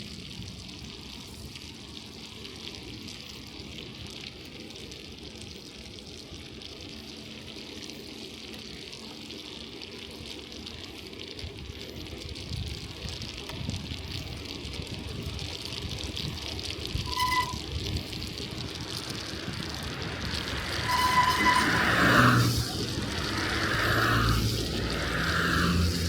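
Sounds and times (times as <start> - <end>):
bicycle tyres hissing on wet snow: 0.0 - 26.0
low rumble: 15.9 - 26.0.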